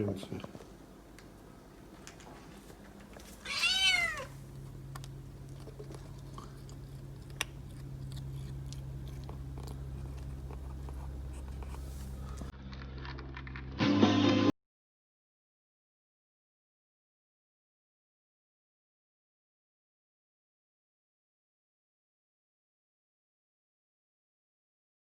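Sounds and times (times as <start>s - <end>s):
steady low hum: 0.0s - 13.2s
cat meowing: 3.4s - 4.4s
faint chewing clicks: 4.4s - 12.5s.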